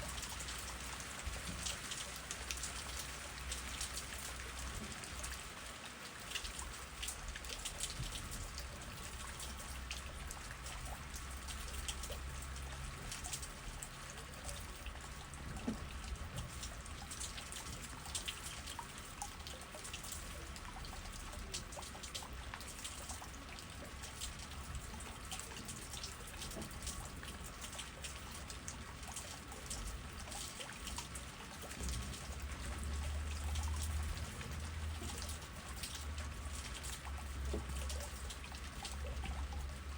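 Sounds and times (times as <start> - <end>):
rain drops dripping: 0.0 - 39.9.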